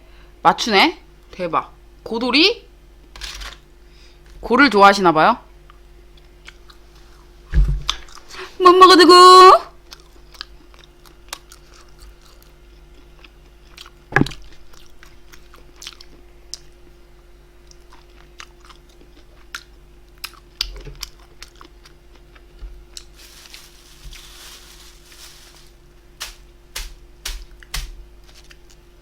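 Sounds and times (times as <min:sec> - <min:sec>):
faint steady hum: 0:00.0 - 0:29.0
chewing and biting food: 0:09.8 - 0:16.7, 0:17.6 - 0:23.2.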